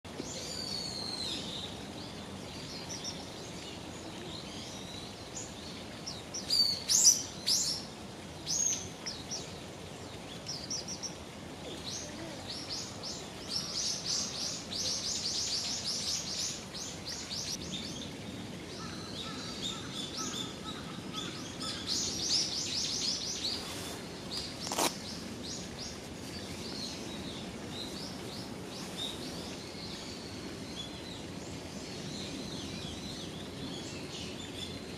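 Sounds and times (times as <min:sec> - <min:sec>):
steady outdoor hiss: 0:00.0 - 0:34.9
small birds chirping: 0:19.4 - 0:31.0.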